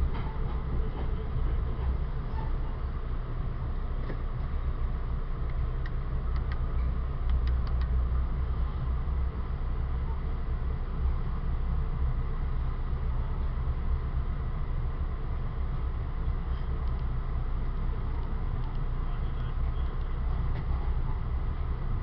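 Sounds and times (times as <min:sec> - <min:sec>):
train rumbling along track: 0:00.0 - 0:22.0
faint clicks: 0:05.4 - 0:08.0.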